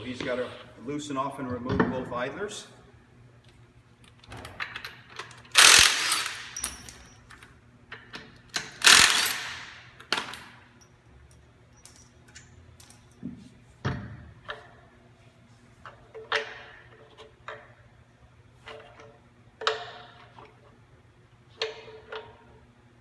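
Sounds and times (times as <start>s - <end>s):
impact wrench firing: 5.5s - 7.1s, 8.6s - 10.5s
light metal clinks: 10.8s - 13.2s.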